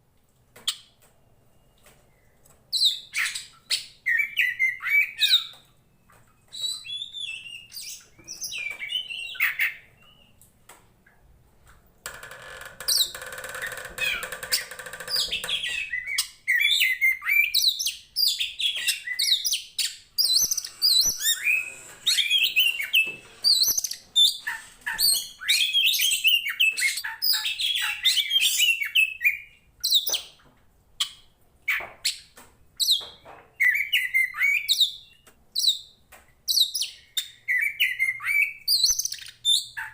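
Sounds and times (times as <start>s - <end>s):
harsh bird buzzing: 20.2s - 25.3s.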